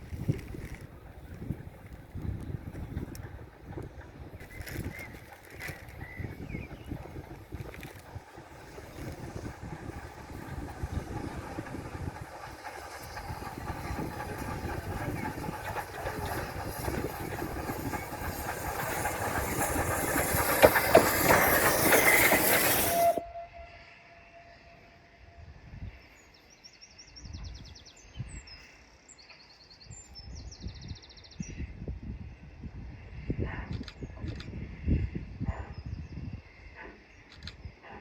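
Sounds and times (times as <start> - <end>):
train clicks: 0.0 - 23.2, 33.5 - 34.6, 37.2 - 38.0
train rumbling past: 0.0 - 29.6.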